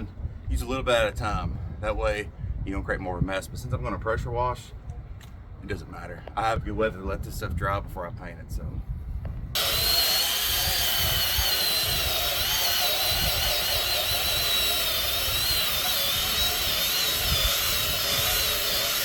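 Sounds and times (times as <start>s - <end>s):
pressure washer spraying: 9.6s - 19.0s.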